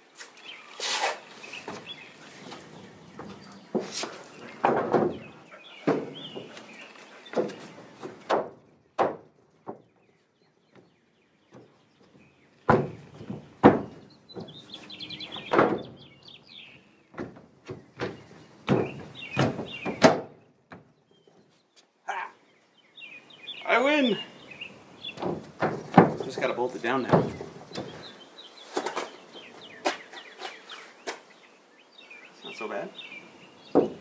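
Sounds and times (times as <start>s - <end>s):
birds chirping: 0.0s - 34.0s
wooden boards thudding and knocking: 1.6s - 6.7s, 7.3s - 10.0s, 11.5s - 16.1s, 17.1s - 20.9s, 25.1s - 28.2s, 33.7s - 34.0s.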